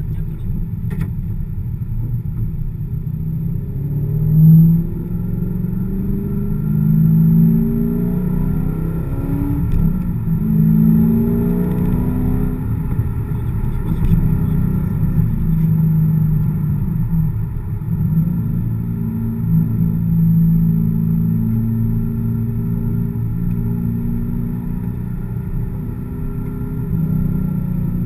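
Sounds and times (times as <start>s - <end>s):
car engine running under load: 9.2s - 28.0s.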